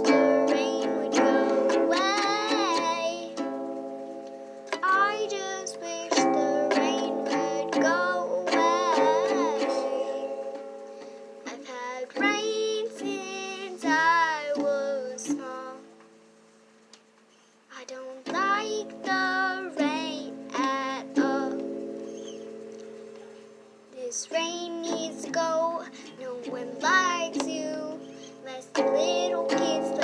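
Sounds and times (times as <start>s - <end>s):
young voice singing: 0.0s - 16.0s, 17.7s - 21.8s, 23.9s - 30.0s
strummed string chords: 0.0s - 16.4s, 24.5s - 30.0s.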